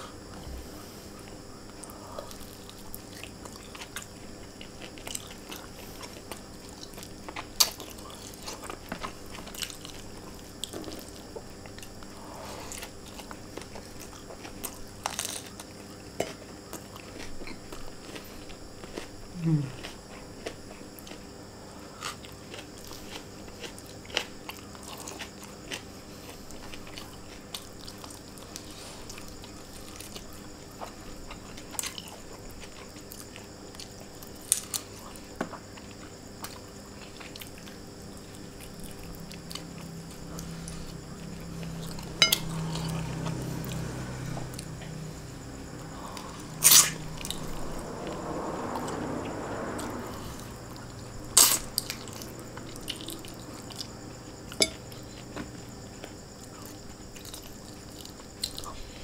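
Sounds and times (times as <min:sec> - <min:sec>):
low hum: 0:38.9 - 0:53.8
chewing mouth sounds: 0:49.8 - 0:58.9.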